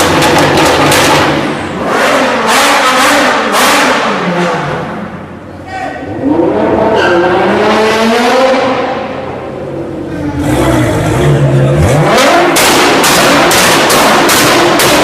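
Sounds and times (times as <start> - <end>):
loud exhaust pops: 0.0 - 1.6, 12.4 - 15.0
car engine revving: 0.0 - 5.4, 6.1 - 15.0.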